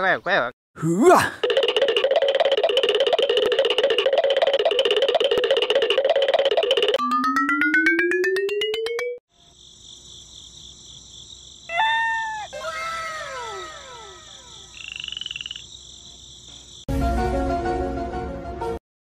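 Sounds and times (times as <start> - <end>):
layered chiming notes: 6.1 - 9.2.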